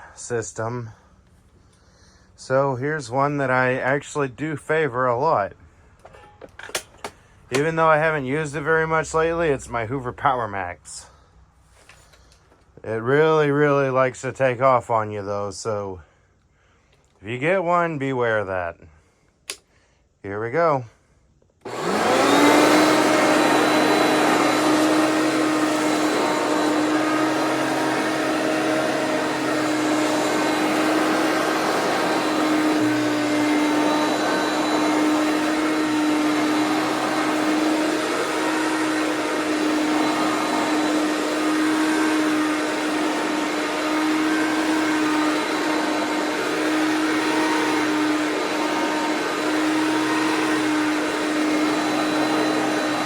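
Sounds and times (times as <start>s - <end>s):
upright vacuum cleaner running: 21.6s - 53.0s.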